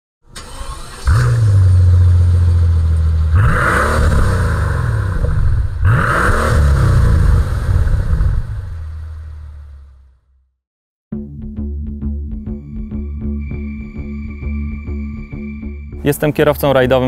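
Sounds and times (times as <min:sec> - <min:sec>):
car engine revving: 0:00.4 - 0:10.1
deep steady drone: 0:11.6 - 0:16.9.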